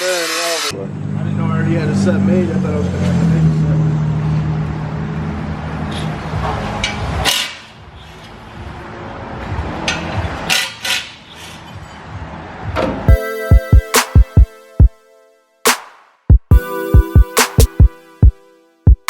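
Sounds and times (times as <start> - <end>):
sharp knocks of shop work: 6.4 - 7.8, 9.8 - 11.2
hip hop beat with heavy bass: 13.1 - 19.0.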